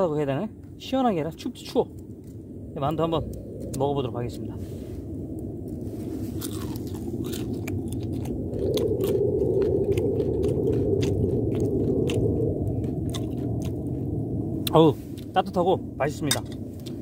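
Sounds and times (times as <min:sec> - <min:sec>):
person chewing food: 0:05.6 - 0:15.3.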